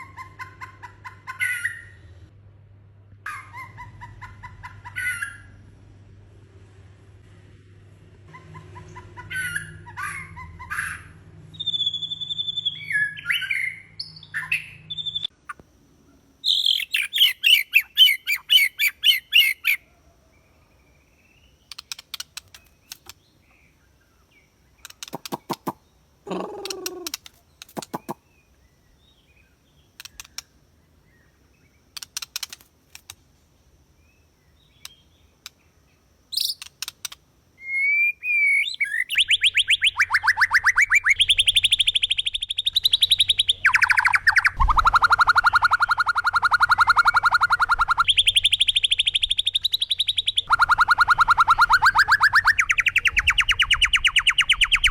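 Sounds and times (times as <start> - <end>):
songbirds chirping and singing: 16.4 - 33.2, 34.0 - 54.9
bird clicking calls: 21.6 - 23.3, 24.8 - 28.2, 30.0 - 30.6, 31.9 - 33.2, 34.8 - 35.6, 36.4 - 37.2.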